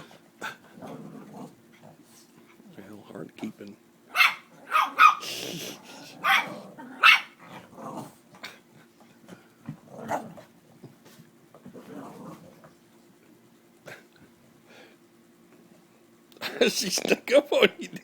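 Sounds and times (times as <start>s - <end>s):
dogs barking and growling: 0.0s - 2.7s, 4.1s - 10.9s, 11.6s - 12.8s.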